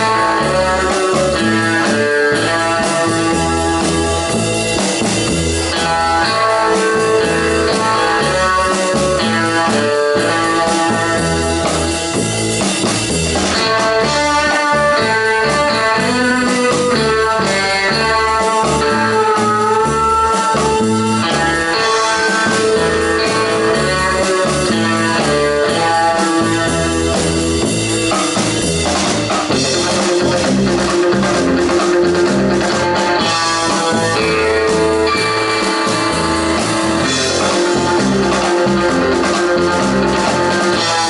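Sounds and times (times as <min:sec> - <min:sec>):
bass guitar: 0:00.0 - 0:41.0
drum kit: 0:00.0 - 0:41.0
electric lead guitar: 0:00.0 - 0:41.0.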